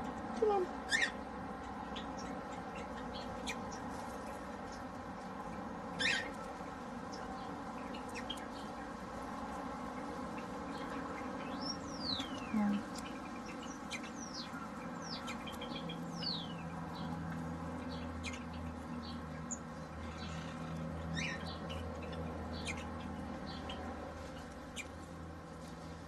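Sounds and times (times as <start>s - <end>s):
birds chirping and whistling: 0.4s - 3.9s, 6.0s - 6.5s, 10.0s - 17.1s, 17.8s - 23.9s.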